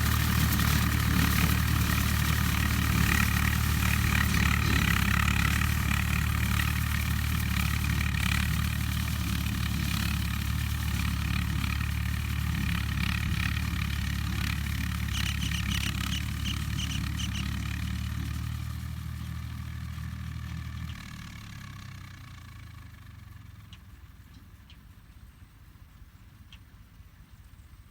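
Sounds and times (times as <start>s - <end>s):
tractor diesel engine running: 0.0s - 27.9s.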